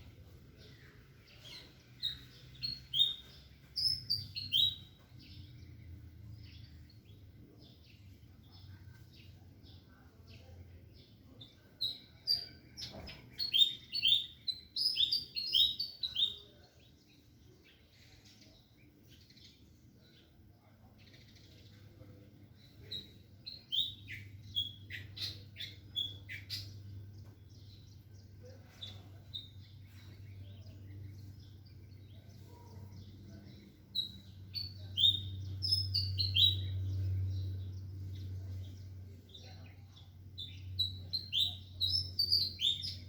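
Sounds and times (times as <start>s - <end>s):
small birds chirping: 0.0s - 43.0s
faint low hum: 16.6s - 43.0s.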